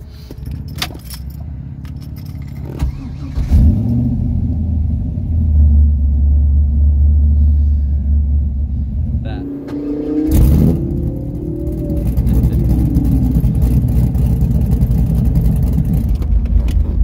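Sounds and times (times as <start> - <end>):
car engine idling: 0.0 - 17.0
keys jangling: 0.2 - 2.9.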